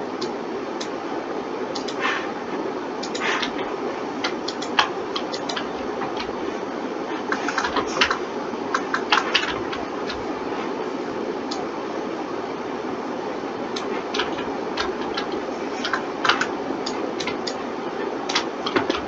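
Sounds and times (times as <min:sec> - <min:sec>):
steady hum: 0:00.0 - 0:19.0
keyboard and mouse clicks: 0:01.7 - 0:02.2, 0:03.0 - 0:06.5, 0:07.2 - 0:10.5, 0:13.7 - 0:19.0.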